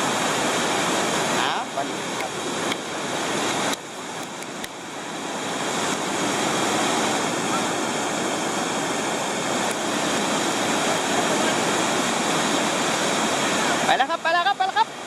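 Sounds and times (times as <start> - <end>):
waterfall rushing water: 0.0 - 15.0.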